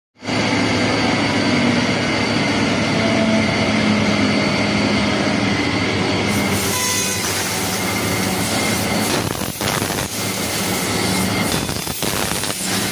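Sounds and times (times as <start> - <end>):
low hum: 0.2 - 6.7
laser cutter hissing: 6.3 - 12.9.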